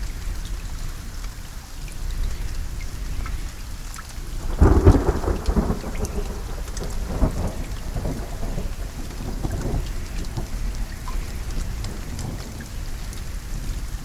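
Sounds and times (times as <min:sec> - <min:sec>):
steady rain: 0:00.0 - 0:14.0
thunder rumbling: 0:04.3 - 0:14.0.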